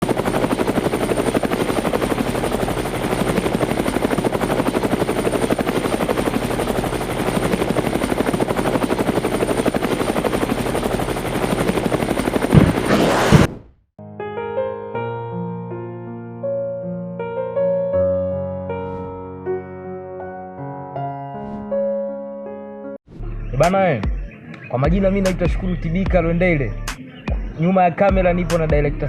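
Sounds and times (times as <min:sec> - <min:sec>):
helicopter rotor chopping: 0:00.0 - 0:13.7
loud thumps: 0:12.5 - 0:13.8
piano music: 0:14.0 - 0:23.0.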